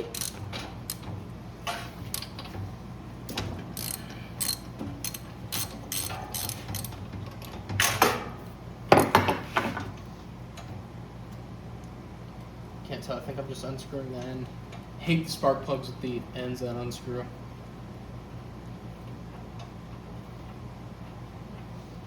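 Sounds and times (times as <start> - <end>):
socket ratchet clicking: 0.0 - 1.0, 3.8 - 7.0.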